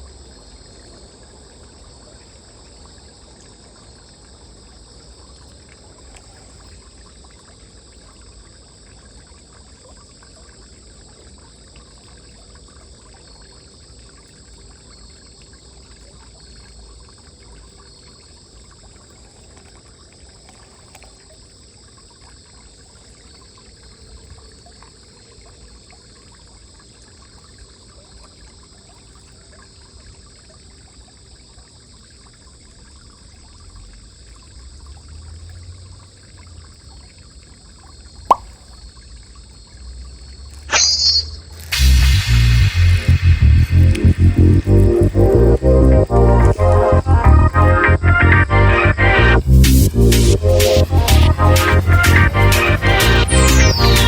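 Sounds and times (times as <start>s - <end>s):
water trickling: 0.0s - 47.3s
high-pitched drone: 40.7s - 54.0s
low rumble: 41.8s - 53.8s.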